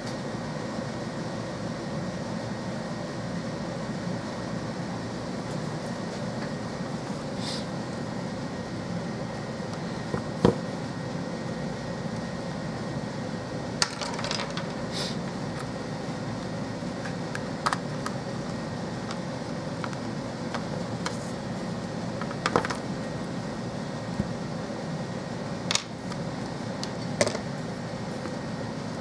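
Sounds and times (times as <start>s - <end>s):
steady room hum: 0.0s - 29.0s.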